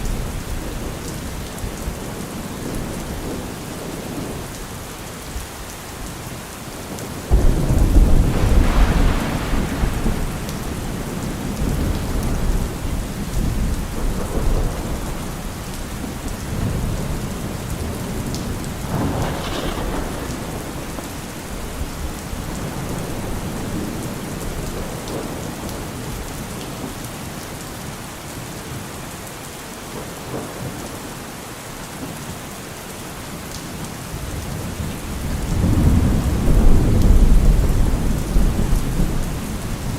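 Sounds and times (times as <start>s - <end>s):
steady rain falling: 0.0s - 39.9s
thunder clap and rumble: 6.7s - 26.6s, 34.2s - 39.9s.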